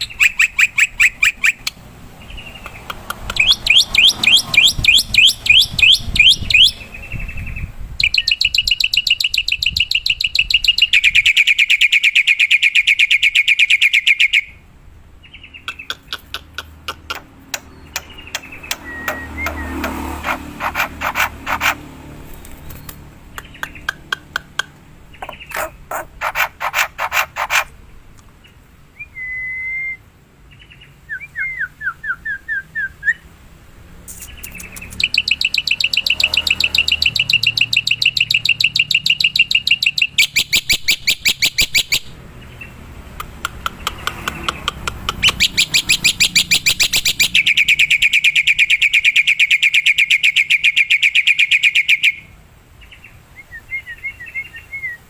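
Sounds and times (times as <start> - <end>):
bird rattling trills: 15.8 - 24.0, 25.2 - 27.7
bird whistled notes: 18.0 - 21.8, 29.0 - 30.0.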